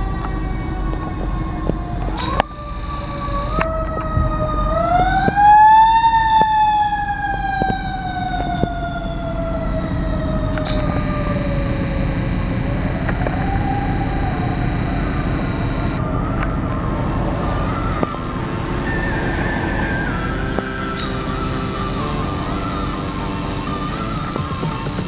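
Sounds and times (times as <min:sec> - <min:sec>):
fire engine siren wailing: 0:00.0 - 0:25.0
steady high hiss: 0:02.2 - 0:03.7, 0:10.7 - 0:16.0, 0:18.2 - 0:25.0.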